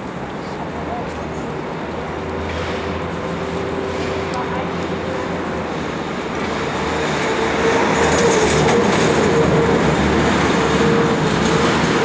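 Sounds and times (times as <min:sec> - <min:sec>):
jet engine roar: 0:01.5 - 0:12.0.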